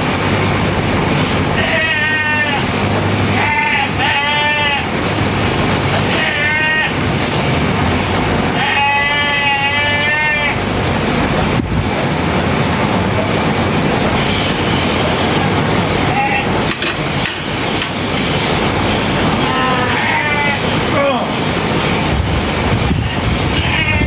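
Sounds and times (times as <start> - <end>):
steady background noise: 0.0 - 24.0
sheep bleating: 1.6 - 2.6, 3.4 - 4.8, 6.1 - 7.0, 8.6 - 10.6, 19.5 - 20.6, 23.6 - 24.0.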